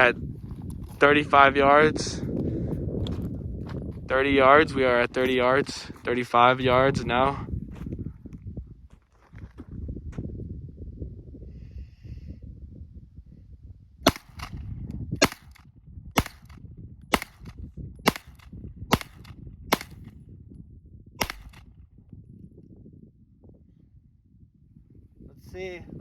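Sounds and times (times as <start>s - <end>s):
low wind rumble: 0.0s - 26.0s
gunshots: 14.1s - 14.6s, 15.2s - 15.6s, 16.2s - 20.1s, 21.2s - 21.6s.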